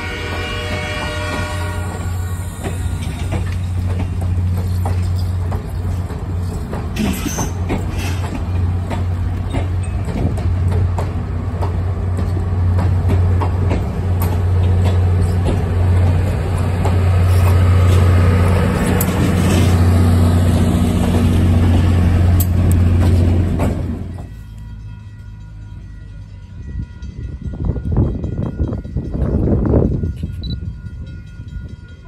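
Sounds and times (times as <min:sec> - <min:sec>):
diesel locomotive engine: 0:00.0 - 0:32.0
train wheels clicking over rail joints: 0:00.7 - 0:24.4.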